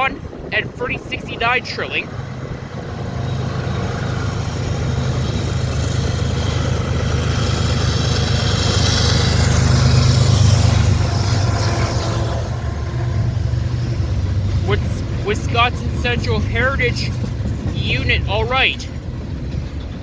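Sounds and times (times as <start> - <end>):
diesel locomotive engines humming: 0.0 - 20.0
hiss of wheels on rail: 3.1 - 12.8.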